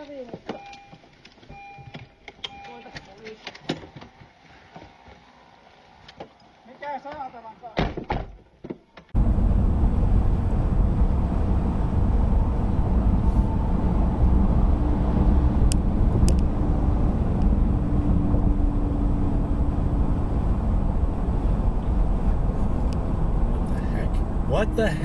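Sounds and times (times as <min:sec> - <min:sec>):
car driving rumble: 0:09.1 - 0:25.0.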